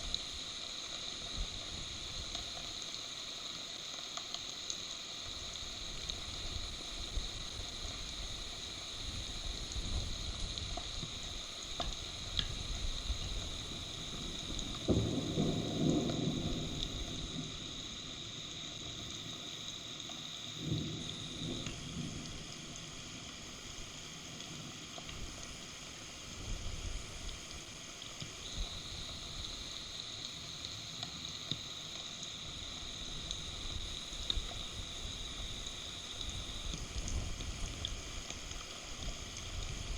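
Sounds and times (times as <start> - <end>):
rain on microphone: 0.0 - 39.9
thunder rumble: 13.6 - 19.0, 20.6 - 23.0.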